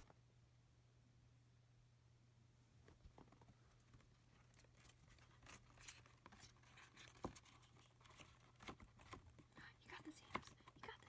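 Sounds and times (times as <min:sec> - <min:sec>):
low steady hum: 0:00.0 - 0:11.0
faint rustling: 0:02.6 - 0:11.0.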